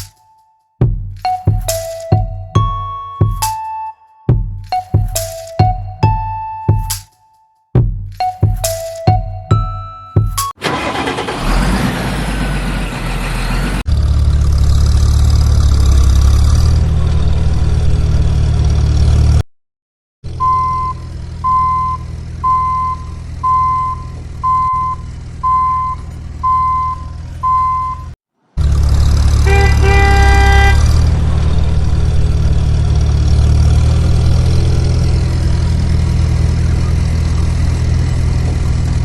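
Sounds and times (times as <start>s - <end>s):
vehicle engine running: 10.6s - 19.4s, 20.3s - 27.7s, 28.6s - 39.0s
reversing alarm beeping: 20.4s - 28.2s.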